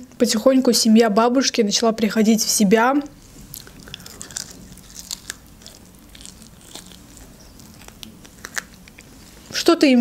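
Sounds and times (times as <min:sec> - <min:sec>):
crunchy chewing: 0:03.2 - 0:09.5.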